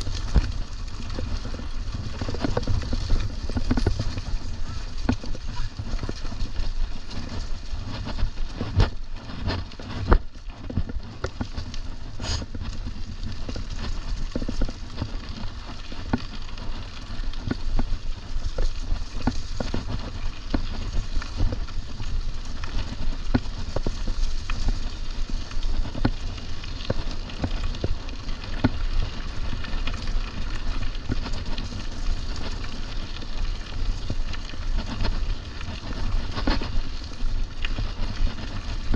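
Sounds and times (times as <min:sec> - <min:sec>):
bike rattling: 0:00.0 - 0:38.9.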